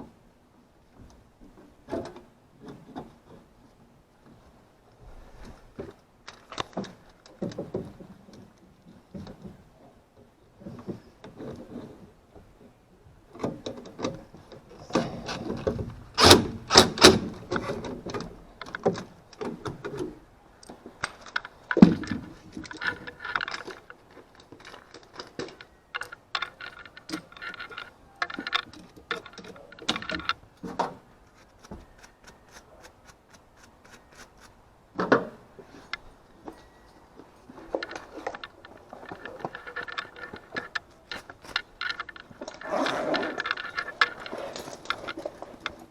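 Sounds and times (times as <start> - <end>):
hard objects clicking and rattling: 14.8 - 36.8, 37.5 - 45.9.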